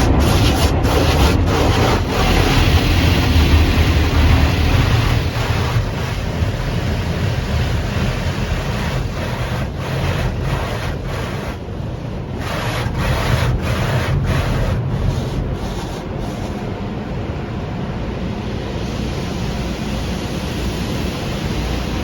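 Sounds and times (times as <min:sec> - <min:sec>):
water spraying: 0:00.0 - 0:16.7
cloth rubbing on car: 0:00.0 - 0:16.9
car wash machinery rumble: 0:00.0 - 0:22.0.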